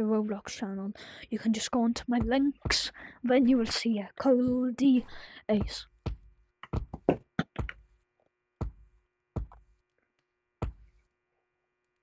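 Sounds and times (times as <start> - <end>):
sharp knocks: 5.6 - 7.8, 9.4 - 9.6.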